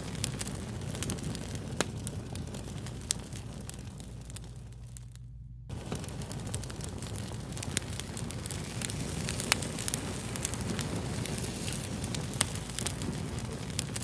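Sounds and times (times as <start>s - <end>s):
fire crackling and popping: 0.0s - 14.0s.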